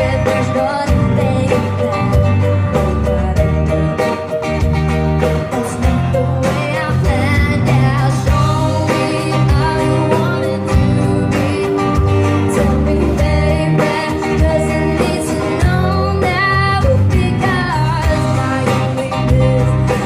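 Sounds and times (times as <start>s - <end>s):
bass guitar: 0.0s - 20.0s
guitar: 0.0s - 20.0s
person singing: 5.5s - 20.0s.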